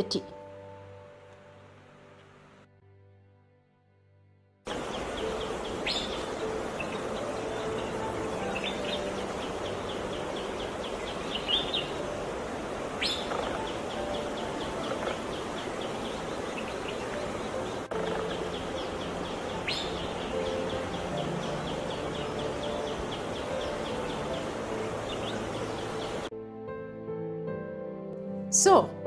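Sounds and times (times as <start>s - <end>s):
high ticking bird trill: 4.7s - 26.3s
sharp downslurred bird calls: 4.7s - 26.3s.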